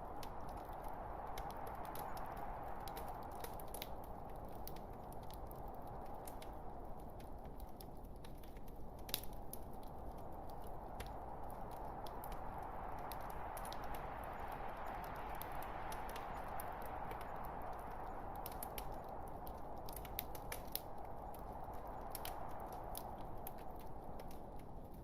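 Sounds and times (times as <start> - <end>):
fire popping and snapping: 0.0 - 25.0.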